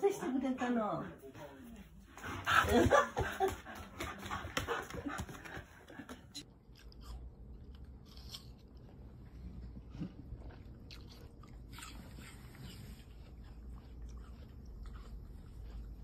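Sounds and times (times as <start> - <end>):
crunchy chewing of fruit: 6.6 - 16.0.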